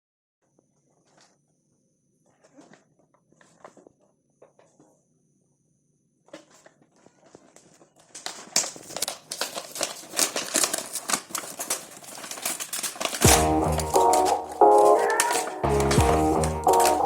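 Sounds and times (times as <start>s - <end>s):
packaging crinkling and rustling: 6.3s - 17.0s
sharp clicks: 12.9s - 17.0s
background music: 13.2s - 17.0s.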